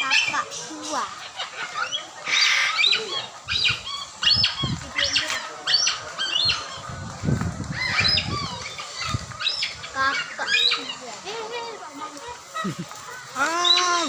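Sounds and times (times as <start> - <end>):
parrot chirping squawks: 1.3 - 6.6.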